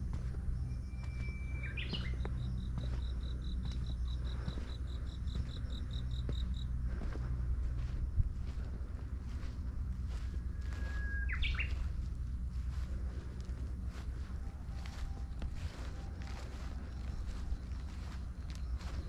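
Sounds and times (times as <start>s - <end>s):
wind rumble on microphone: 0.0s - 19.0s
bird chirps: 0.9s - 2.9s, 10.6s - 12.0s
bird whistling: 1.2s - 2.2s, 10.6s - 11.8s.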